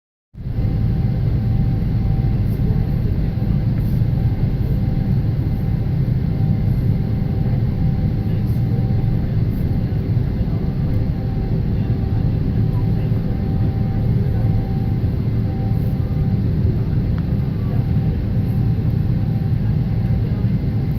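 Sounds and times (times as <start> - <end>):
airliner engines rumbling: 0.4 - 20.9.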